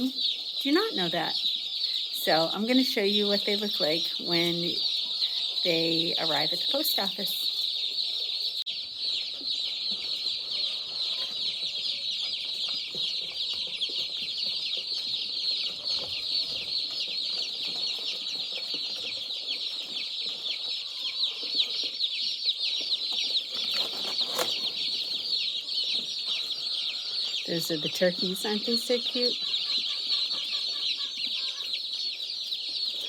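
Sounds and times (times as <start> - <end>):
chicks peeping: 0.0 - 33.0.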